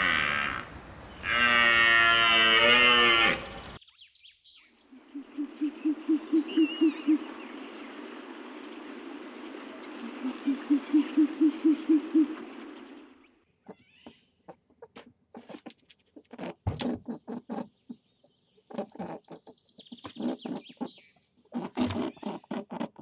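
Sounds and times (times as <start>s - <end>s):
animal hooting: 0.0s - 3.7s, 5.0s - 7.4s
clicks and rustles: 13.7s - 17.6s.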